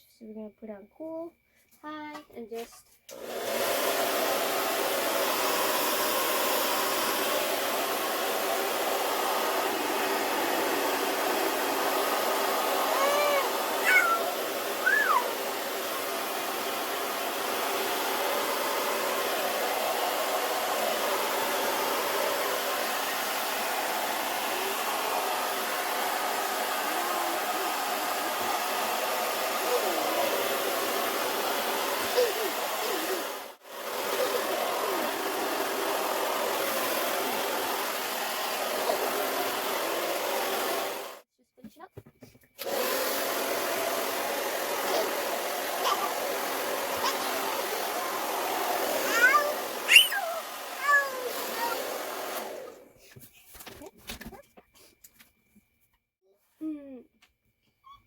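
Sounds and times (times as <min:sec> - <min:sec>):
hair dryer blowing: 0:03.1 - 0:41.3, 0:42.6 - 0:53.0
child squealing: 0:12.8 - 0:15.4, 0:32.1 - 0:33.2, 0:45.8 - 0:46.2, 0:46.9 - 0:47.6, 0:49.0 - 0:51.9.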